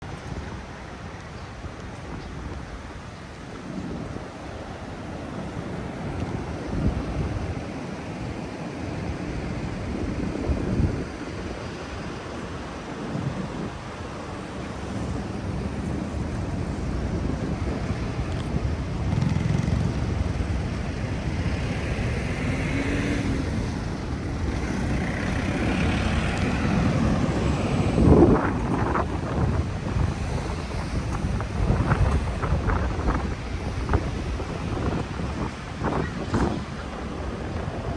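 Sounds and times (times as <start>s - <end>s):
passing cars and buses: 0.0s - 37.9s
vehicle passing: 16.3s - 37.3s.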